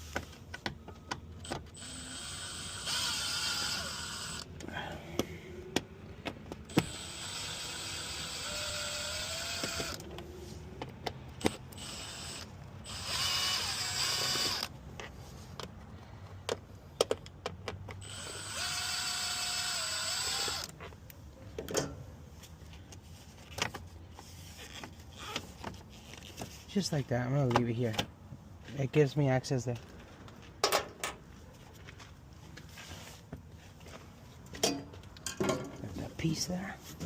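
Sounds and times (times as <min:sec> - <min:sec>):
cordless drill whining: 0:01.4 - 0:04.5, 0:06.7 - 0:10.0, 0:11.4 - 0:14.7, 0:18.0 - 0:20.7, 0:24.7 - 0:25.4
tools clicking and tapping: 0:14.9 - 0:18.0.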